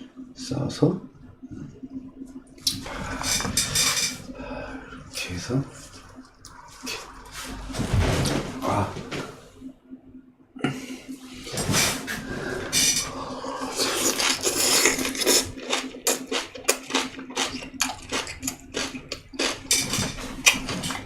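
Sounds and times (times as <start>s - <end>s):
wet smacking and chewing: 13.6s - 21.0s.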